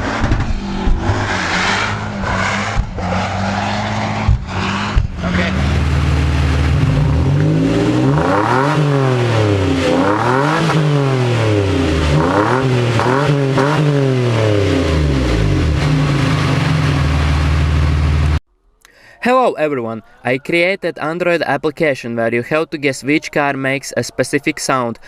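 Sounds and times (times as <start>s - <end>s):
car engine revving: 0.0s - 18.4s.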